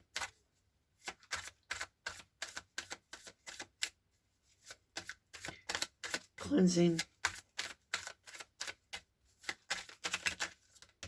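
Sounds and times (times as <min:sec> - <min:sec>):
cards snapping and clicking: 0:01.0 - 0:03.9, 0:05.0 - 0:06.3, 0:06.9 - 0:11.0.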